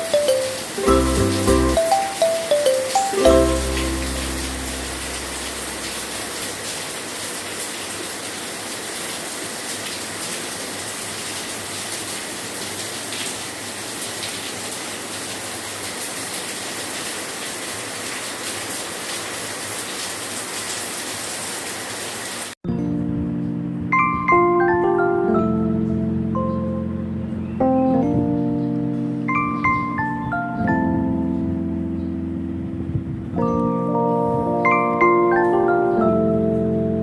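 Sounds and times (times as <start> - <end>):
heavy rain falling: 0.0 - 22.6.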